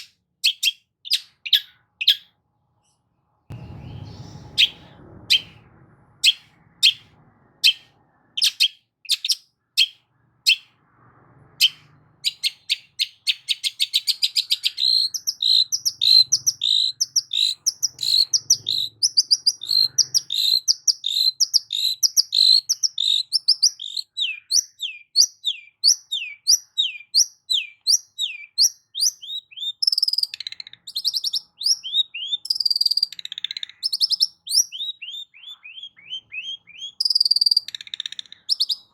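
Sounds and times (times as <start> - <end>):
bird chips and chattering: 8.4 - 10.7, 11.6 - 38.9.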